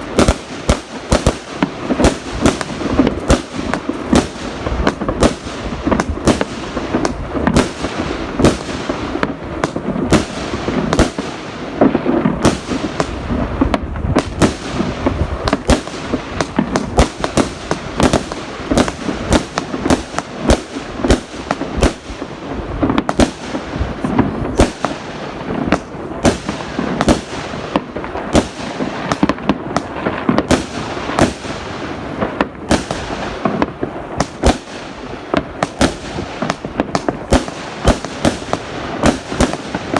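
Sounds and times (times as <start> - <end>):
fireworks and firecrackers exploding: 0.0 - 39.9
rumble of distant blasts: 12.3 - 30.0.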